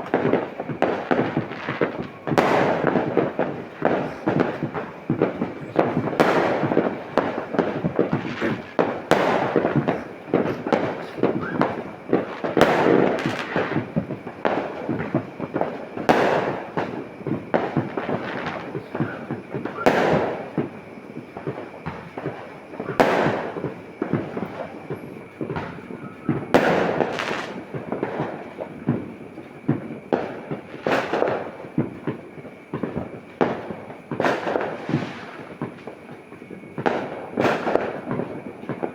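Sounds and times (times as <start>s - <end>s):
firecracker bangs: 0.0s - 38.9s
fireworks crackling: 0.0s - 38.9s.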